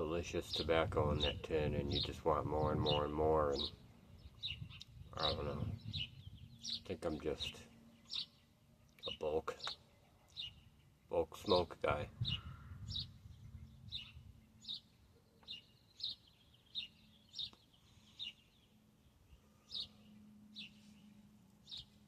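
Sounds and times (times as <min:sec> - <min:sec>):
small bird chirping: 0:00.5 - 0:11.6, 0:12.2 - 0:22.0
faint hum: 0:17.1 - 0:22.0.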